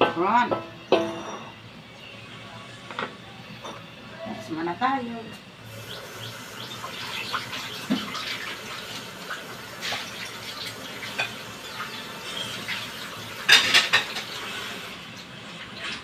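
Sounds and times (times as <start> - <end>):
oil popping: 5.7 - 14.9
vegetables sizzling in a wok: 5.7 - 16.0.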